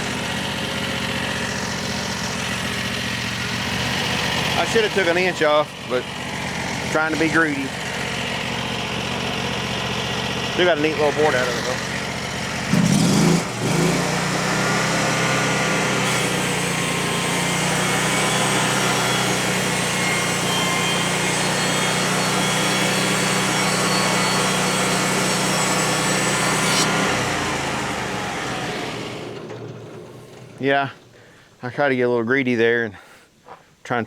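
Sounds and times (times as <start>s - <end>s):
bandsaw mill engine under load: 0.0s - 31.5s
band blade cutting log: 12.7s - 29.2s.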